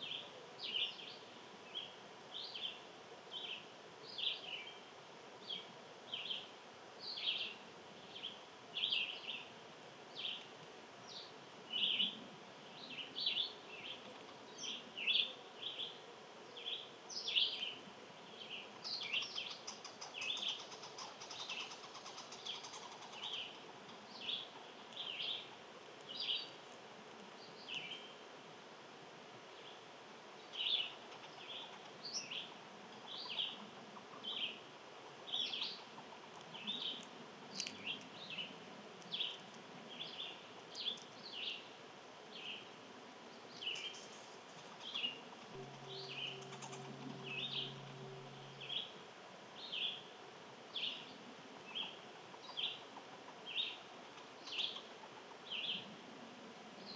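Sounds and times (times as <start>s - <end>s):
small birds chirping: 0.0s - 28.3s, 29.5s - 56.1s
faint fast bird trill: 43.6s - 49.0s.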